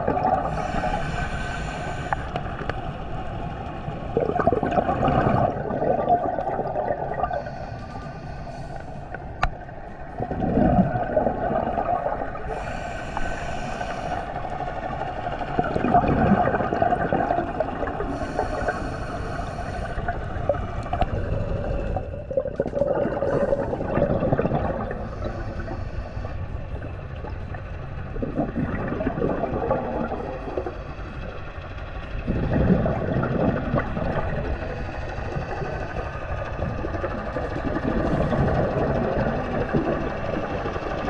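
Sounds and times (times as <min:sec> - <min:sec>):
exhaled bubbles rushing: 0:00.0 - 0:01.0, 0:04.0 - 0:07.5, 0:09.6 - 0:12.7, 0:13.7 - 0:18.8, 0:19.8 - 0:25.7, 0:26.8 - 0:30.8, 0:32.2 - 0:41.0
steady underwater gurgling: 0:00.0 - 0:41.0.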